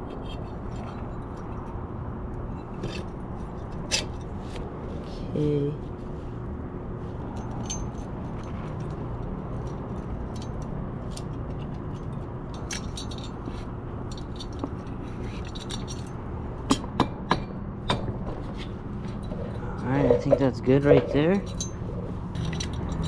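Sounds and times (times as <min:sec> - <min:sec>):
low background hum: 0:00.0 - 0:23.0
metal parts and tools clinking: 0:07.3 - 0:16.2, 0:18.0 - 0:23.0.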